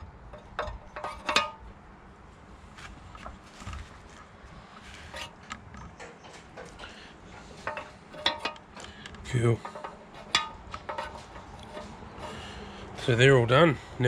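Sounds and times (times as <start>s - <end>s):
steel parts clinking: 0.3s - 1.7s, 6.0s - 12.5s.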